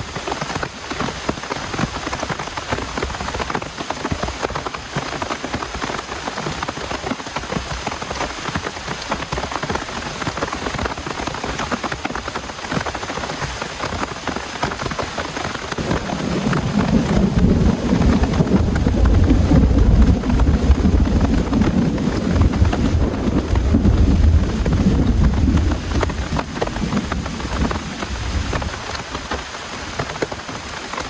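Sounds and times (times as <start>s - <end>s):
heavy rain pattering: 0.0s - 31.0s
loud low rumble: 15.8s - 25.8s.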